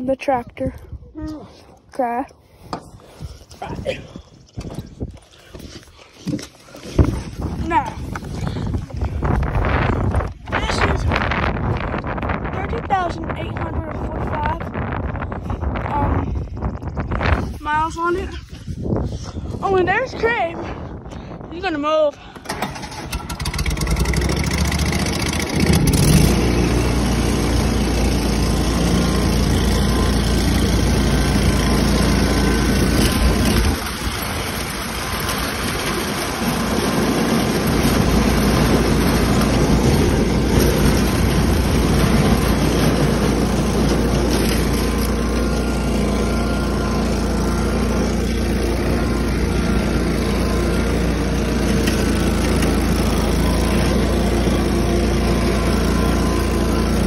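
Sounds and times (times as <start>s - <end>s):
tractor engine droning: 22.3s - 57.0s.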